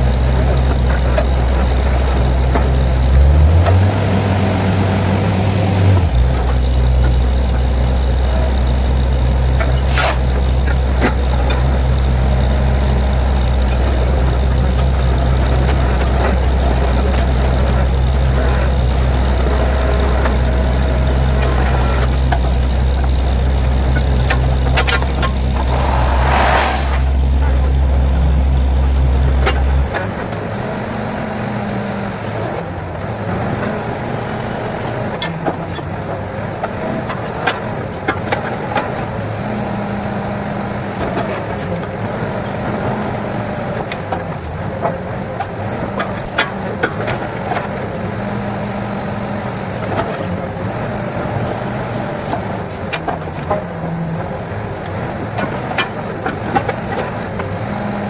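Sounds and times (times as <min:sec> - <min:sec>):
heavy deep rumble: 0:00.0 - 0:30.3
drilling rig engine running: 0:00.0 - 0:43.7.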